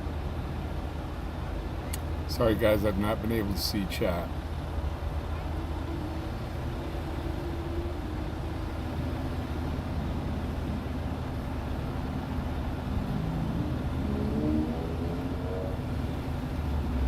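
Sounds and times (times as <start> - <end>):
vehicle engine rumble: 0.0 - 17.0
faint pitched sounds: 11.6 - 17.0.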